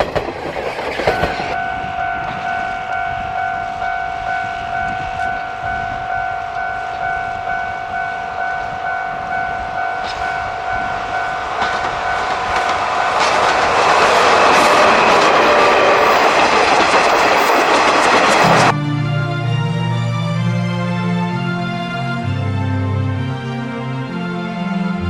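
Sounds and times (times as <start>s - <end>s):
train wheels clattering: 0.0s - 18.7s
level crossing bell ringing: 1.0s - 18.8s.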